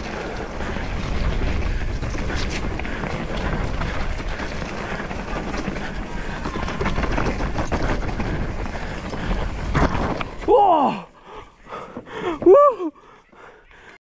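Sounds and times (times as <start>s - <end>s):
bike rattling and clicking: 0.0s - 13.9s
bike tyres rolling over dirt: 0.0s - 14.0s.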